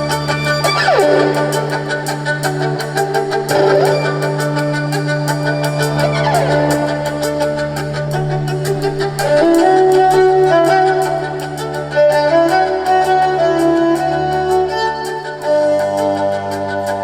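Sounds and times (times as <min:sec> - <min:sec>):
live band playing instrumental: 0:00.0 - 0:17.0.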